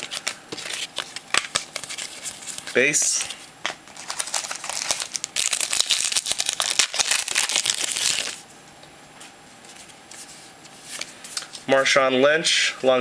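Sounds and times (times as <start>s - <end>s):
foil wrapper crinkling: 3.9s - 8.4s.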